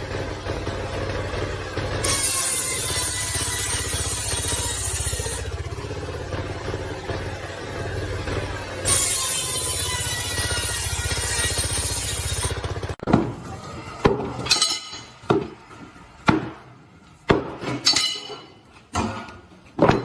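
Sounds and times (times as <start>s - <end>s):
sharp clinking strikes: 17.8s - 18.6s.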